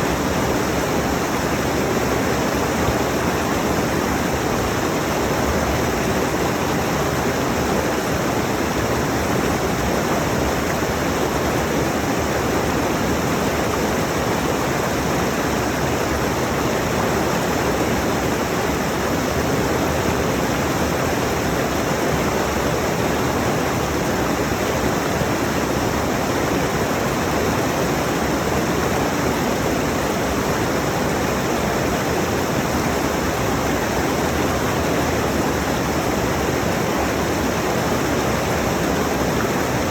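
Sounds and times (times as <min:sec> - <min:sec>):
rushing mountain stream: 0:00.0 - 0:39.9.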